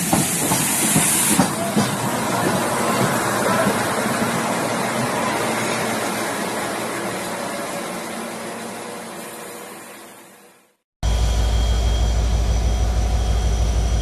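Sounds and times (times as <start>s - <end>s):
passenger train rumble and hiss: 0.0s - 10.8s.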